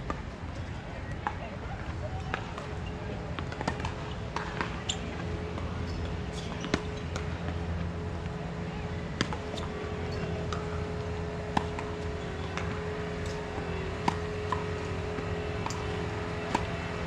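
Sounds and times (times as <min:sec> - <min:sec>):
low hum: 0:03.9 - 0:17.0.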